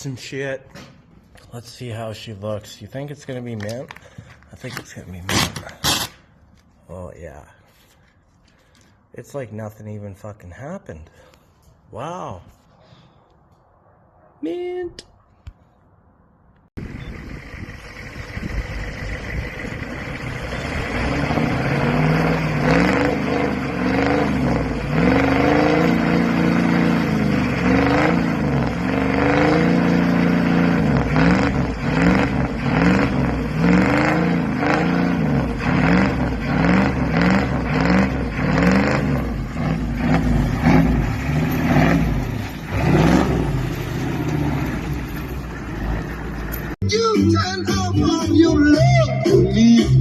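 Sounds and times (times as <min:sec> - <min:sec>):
vehicle engine revving: 0:16.8 - 0:46.8.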